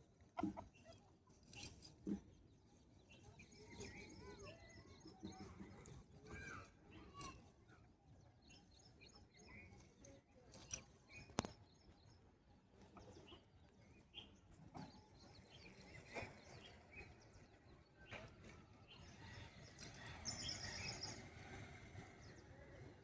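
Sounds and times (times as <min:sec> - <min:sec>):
small birds chirping: 0:00.8 - 0:18.2, 0:18.8 - 0:22.6.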